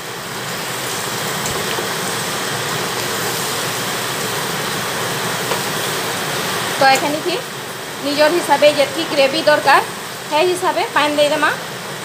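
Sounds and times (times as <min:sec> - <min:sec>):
chicken sizzling in pan: 0:00.0 - 0:12.0.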